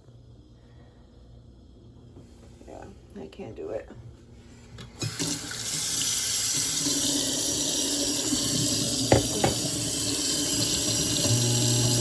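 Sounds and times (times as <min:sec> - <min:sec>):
water running from faucet: 0:05.0 - 0:12.0.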